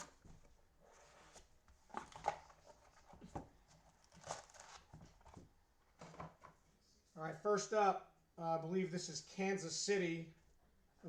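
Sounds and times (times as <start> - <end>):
card packs crinkling and rustling: 0.9 - 6.4.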